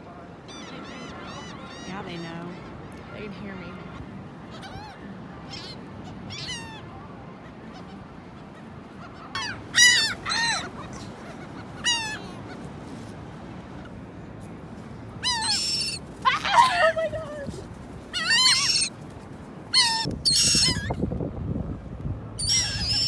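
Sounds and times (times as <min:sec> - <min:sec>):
seagulls calling: 0:00.4 - 0:12.8, 0:15.2 - 0:19.0, 0:19.7 - 0:21.0, 0:22.4 - 0:23.0.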